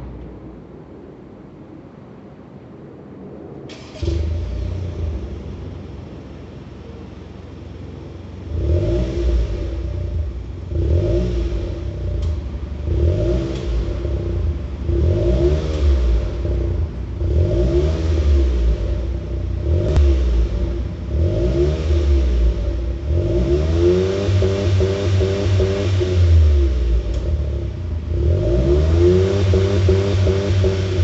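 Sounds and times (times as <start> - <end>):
car engine idling and revving: 2.7 - 31.0.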